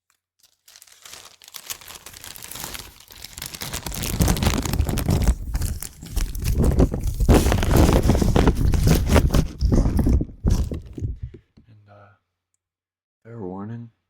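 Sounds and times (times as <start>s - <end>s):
plastic bag crinkling: 0.0s - 11.4s
heavy low rumble: 5.0s - 11.4s.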